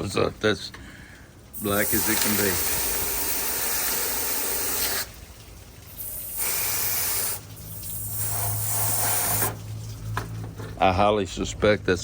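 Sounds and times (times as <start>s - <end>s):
running water rinsing rocks: 0.0s - 11.0s.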